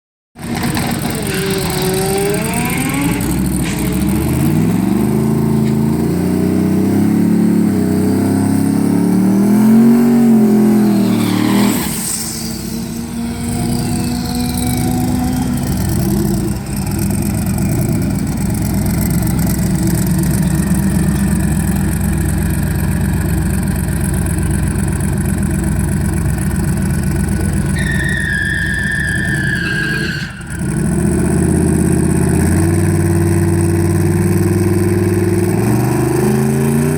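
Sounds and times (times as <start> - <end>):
car engine revving: 0.4 - 36.9
high whistle sliding down: 10.0 - 16.0, 27.8 - 30.6.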